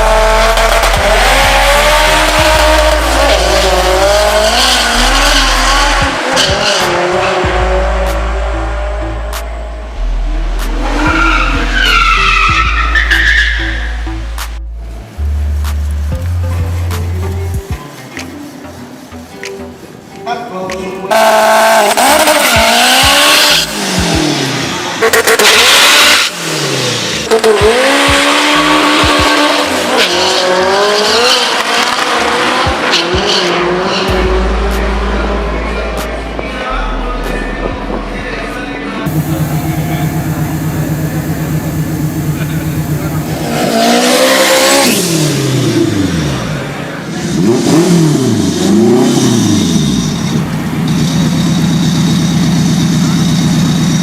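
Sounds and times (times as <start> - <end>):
racing car engine running: 0.0 - 12.8, 39.1 - 54.0.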